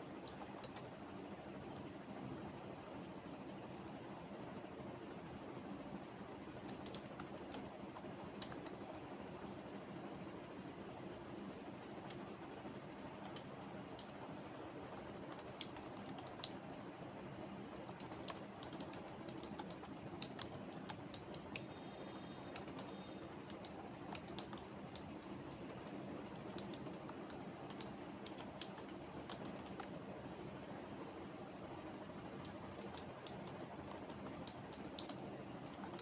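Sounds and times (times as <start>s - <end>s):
low room hum: 0.0s - 36.0s
keyboard typing: 0.2s - 0.9s, 6.5s - 9.6s, 14.8s - 16.6s, 17.9s - 30.2s, 32.3s - 36.0s.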